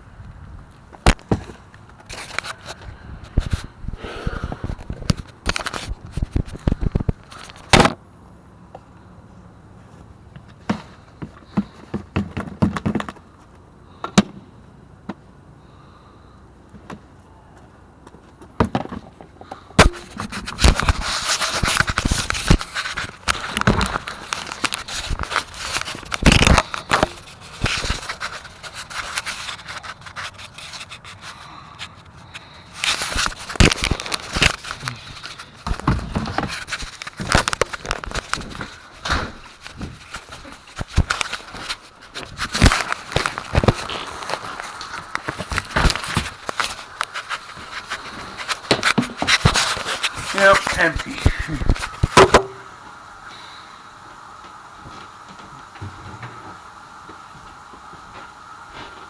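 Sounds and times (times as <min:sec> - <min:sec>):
rustling and scraping: 0:00.9 - 0:07.8, 0:18.2 - 0:52.8
objects knocking and clicking: 0:48.5 - 0:52.7.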